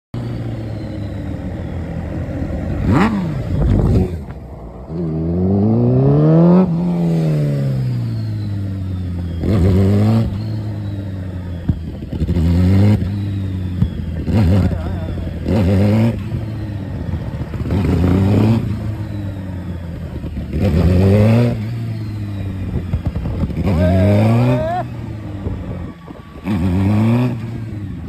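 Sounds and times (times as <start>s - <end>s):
motorcycle engine idling and revving: 0.2s - 28.0s.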